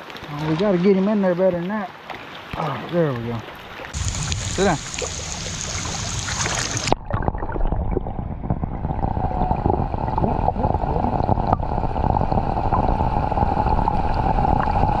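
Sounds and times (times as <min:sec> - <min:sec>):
water rumble: 0:00.0 - 0:15.0
wind noise: 0:03.9 - 0:15.0
boat motor hum: 0:04.0 - 0:06.9.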